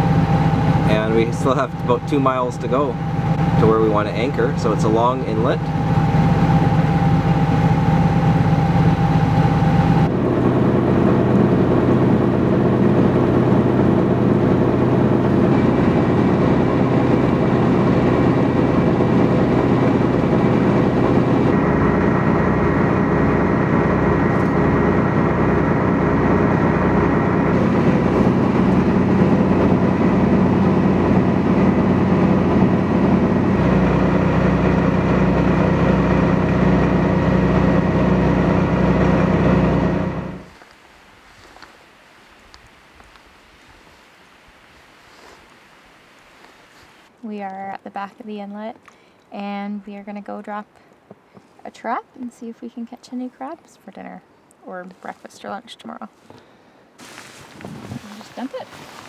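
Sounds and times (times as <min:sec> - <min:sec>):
boat engine drone: 0:00.0 - 0:41.4.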